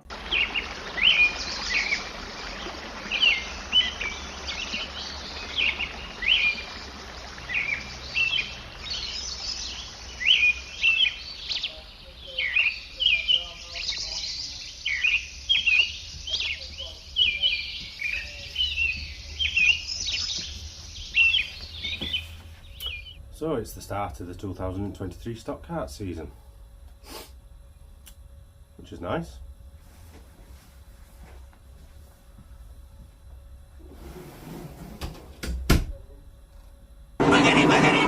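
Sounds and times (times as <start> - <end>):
small birds chirping: 0.0 - 23.2.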